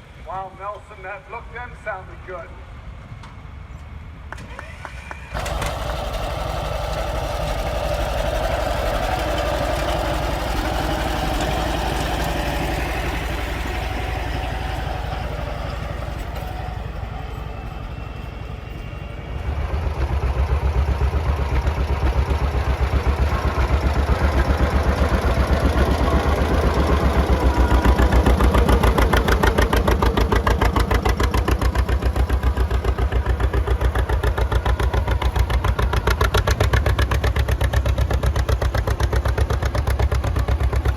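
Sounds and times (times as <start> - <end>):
tractor engines running: 0.0 - 40.9
engine with pulsing beat: 4.6 - 40.9.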